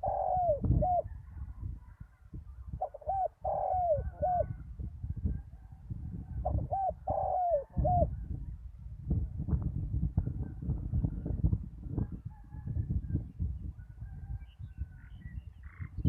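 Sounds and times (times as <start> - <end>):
dove cooing: 0.0 - 5.6, 6.2 - 8.4.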